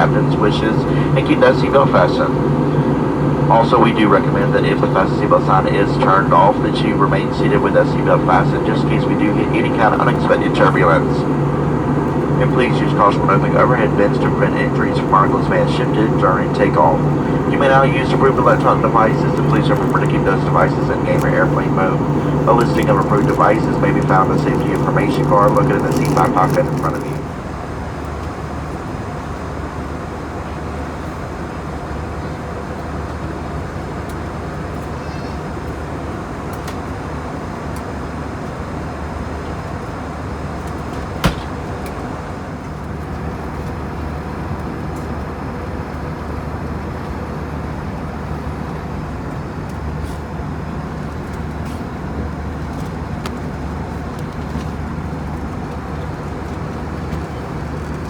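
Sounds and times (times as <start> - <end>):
airplane cabin drone: 0.0 - 58.0.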